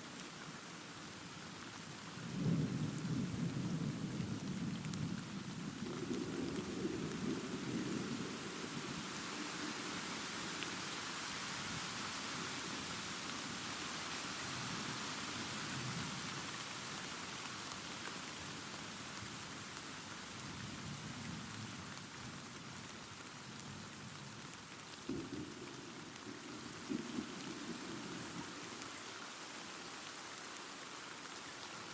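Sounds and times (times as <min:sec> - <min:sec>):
steady rain: 0:00.0 - 0:31.9
distant thunder rumble: 0:25.1 - 0:28.8.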